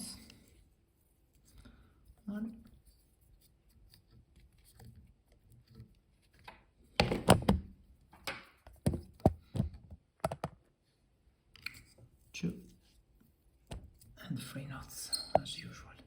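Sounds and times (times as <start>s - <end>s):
sharp knocks and clicks: 6.4s - 10.6s.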